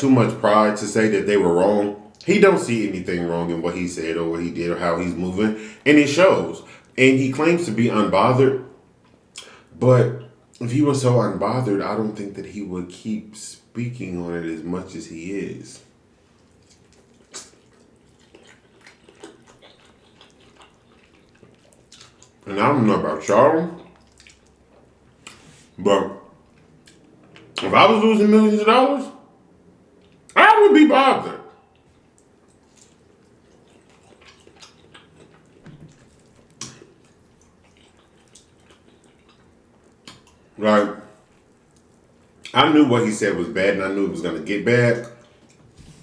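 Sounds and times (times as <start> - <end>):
person chewing food: 16.3 - 22.5, 23.8 - 27.6, 29.9 - 30.4, 31.7 - 40.6.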